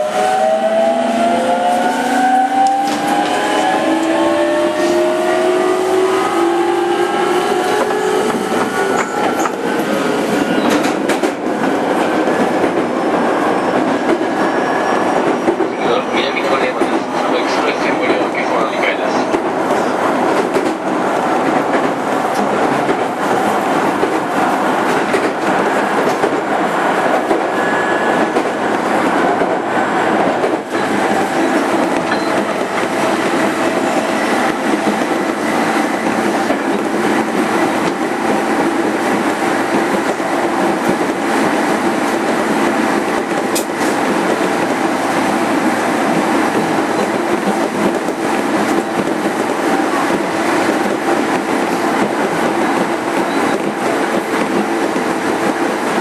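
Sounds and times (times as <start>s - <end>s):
wheel-on-rail roar: 0.0s - 18.5s, 19.1s - 56.0s
rail joint clicks: 7.8s - 12.9s, 20.3s - 24.2s, 29.4s - 45.3s, 46.1s - 56.0s.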